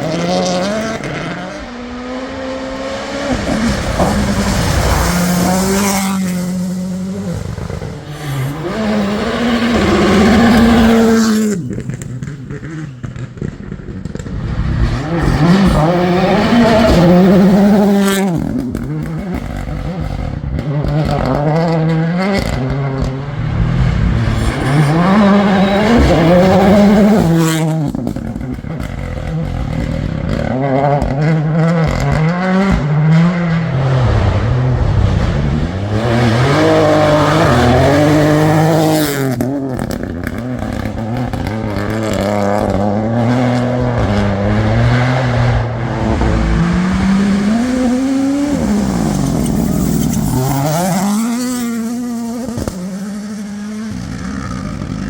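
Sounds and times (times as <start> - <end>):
rally cars accelerating past: 0.0 - 55.0.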